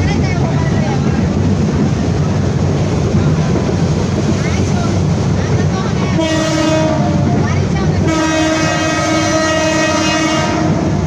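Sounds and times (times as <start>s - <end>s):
moving train rumble: 0.0s - 11.0s
train horn blasts: 6.1s - 7.4s, 8.0s - 11.0s.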